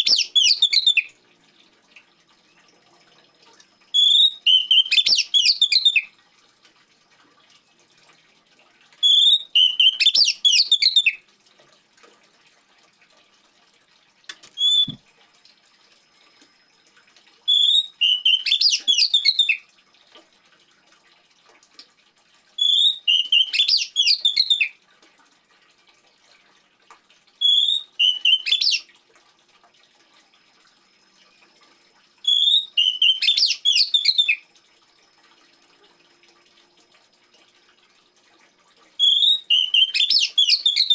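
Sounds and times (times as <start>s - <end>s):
bird singing: 0.0s - 1.1s, 4.0s - 6.1s, 9.0s - 11.2s, 14.6s - 15.0s, 17.5s - 19.6s, 22.6s - 24.7s, 27.4s - 28.8s, 32.3s - 34.4s, 39.0s - 40.9s.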